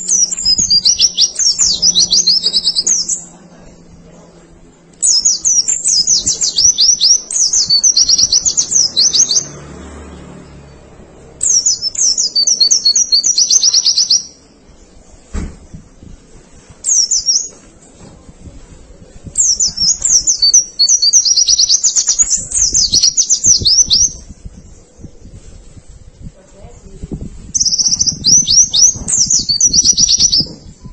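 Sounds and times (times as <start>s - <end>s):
bird twittering: 0.0s - 3.3s, 5.0s - 9.6s, 11.4s - 14.4s, 16.8s - 17.6s, 19.4s - 24.2s, 27.6s - 30.6s
soft knock: 15.3s - 15.8s.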